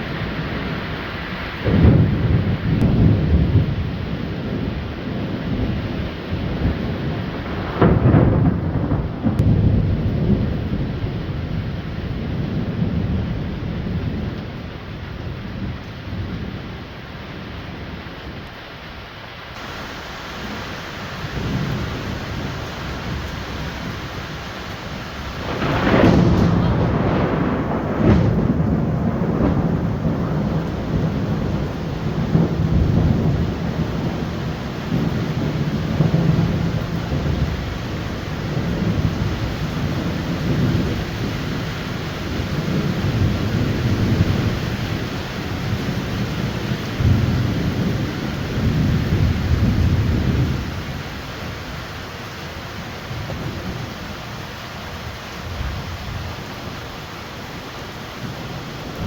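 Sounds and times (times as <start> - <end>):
thunder rumbling: 0.0 - 18.6, 19.5 - 59.0
heavy rain: 0.0 - 59.0
sharp thunder crack: 1.6 - 14.4, 19.6 - 50.8.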